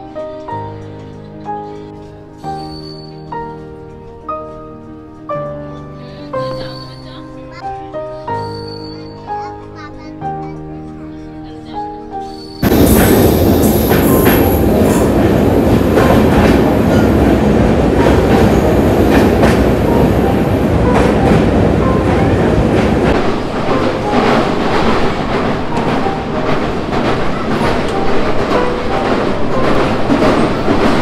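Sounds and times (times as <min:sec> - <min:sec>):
train wheel clicks: 0:00.0 - 0:11.0, 0:11.8 - 0:31.0
train wheels rumbling on rails: 0:11.8 - 0:31.0.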